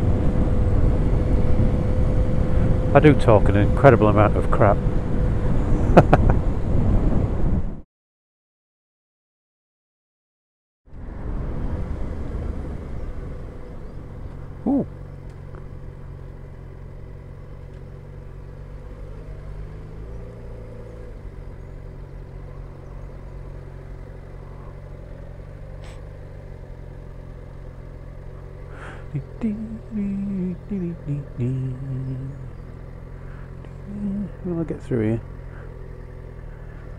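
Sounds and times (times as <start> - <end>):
wind and road noise: 0.0 - 7.8, 10.9 - 36.9
motorcycle engine running: 12.3 - 36.9.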